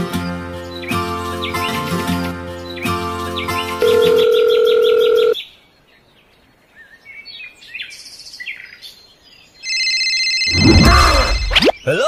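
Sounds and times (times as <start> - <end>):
loud steady electronic tone: 10.4 - 11.7.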